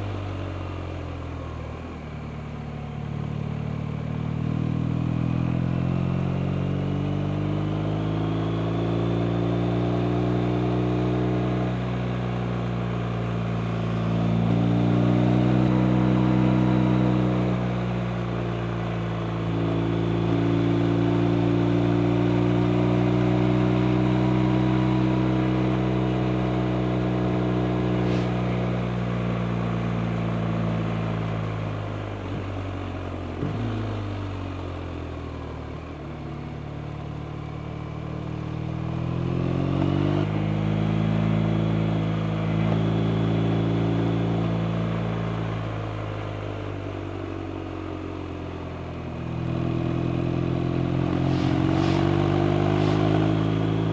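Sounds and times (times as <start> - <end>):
motorcycle engine running: 44.0 - 53.9.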